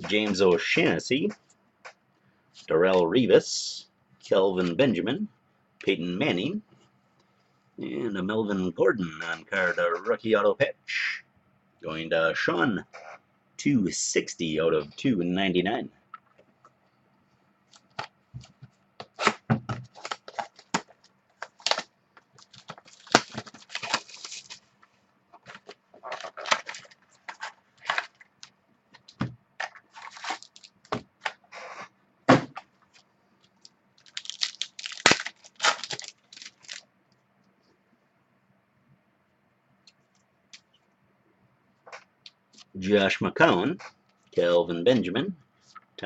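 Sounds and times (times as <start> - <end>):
foil wrapper tearing and crinkling: 21.4 - 24.6, 30.0 - 30.7, 34.0 - 36.8.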